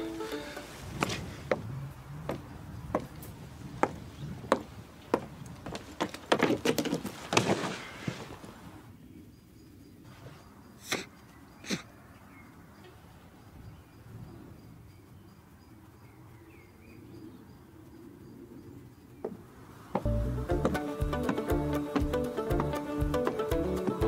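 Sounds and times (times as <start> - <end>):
sharp wooden knocks: 3.8 - 7.7, 19.2 - 24.0
wooden clatter: 3.8 - 8.5.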